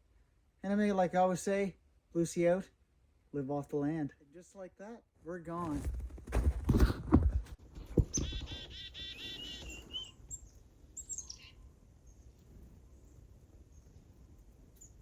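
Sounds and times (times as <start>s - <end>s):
bird chirping high: 8.0s - 12.2s
bird calling buzzy notes: 8.1s - 11.6s.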